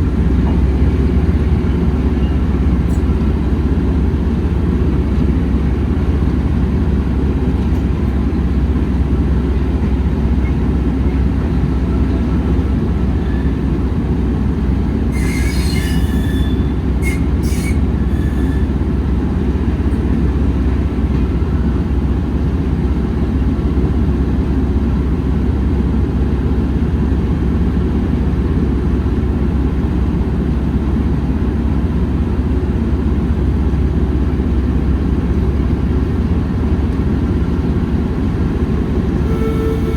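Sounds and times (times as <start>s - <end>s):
train rumbling on rails: 0.0s - 39.9s
wheel squeal: 13.2s - 13.8s, 15.1s - 18.8s, 39.2s - 39.9s.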